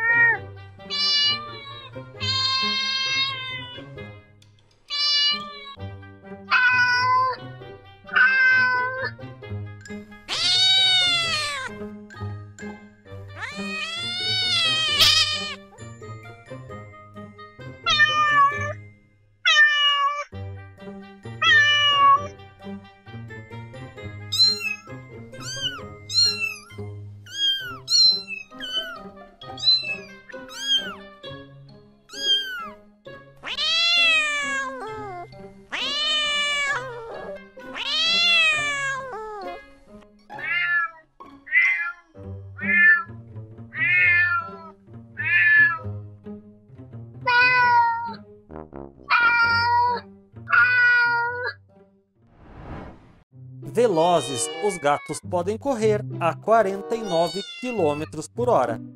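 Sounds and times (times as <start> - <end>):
cats meowing: 0.0 - 4.0, 4.9 - 5.8, 6.5 - 7.4, 8.1 - 9.1, 10.3 - 11.7, 13.4 - 15.6, 17.9 - 18.8, 19.5 - 20.3, 21.4 - 22.3, 24.3 - 31.0, 32.1 - 32.8, 33.4 - 39.7, 40.3 - 43.1, 43.7 - 45.8, 47.2 - 48.2, 49.1 - 51.6, 54.0 - 55.3, 56.9 - 58.1
soft background music: 0.0 - 52.1, 53.4 - 58.9.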